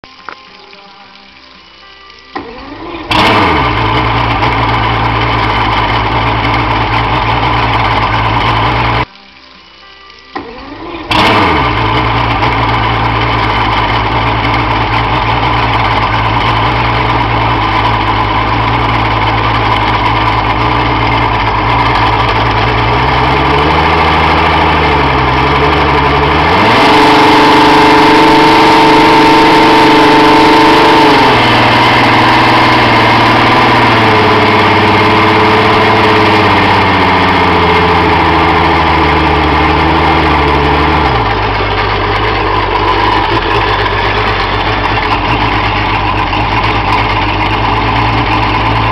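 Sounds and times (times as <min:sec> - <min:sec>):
outboard motor starting and idling: 0:02.3 - 0:09.1, 0:10.3 - 0:48.9
outboard motor revving: 0:02.4 - 0:09.1, 0:10.6 - 0:48.9.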